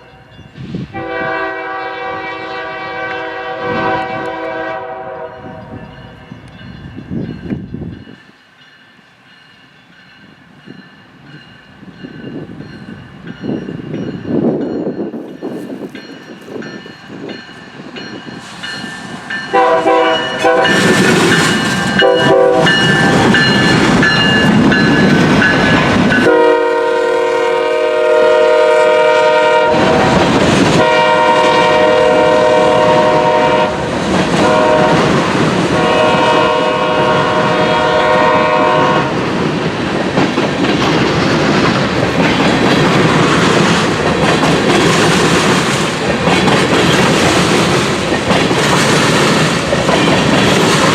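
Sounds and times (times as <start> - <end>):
train rumble and clatter: 0.0 - 50.9
locomotive horn: 0.9 - 6.2, 19.5 - 21.1, 22.0 - 23.5, 26.2 - 35.1, 35.7 - 39.2
wheels clicking over rail joints: 39.3 - 50.9.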